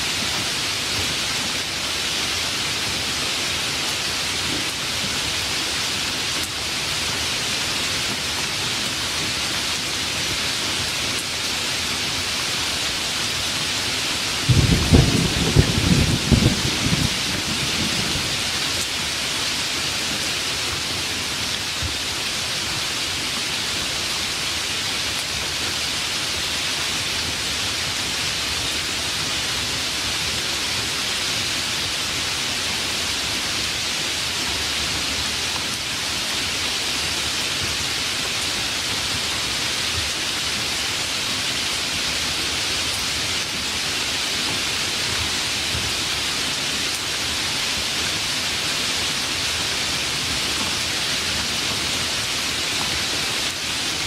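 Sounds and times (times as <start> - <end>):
rain falling: 0.0 - 54.0
low thunder rumble: 14.5 - 18.6.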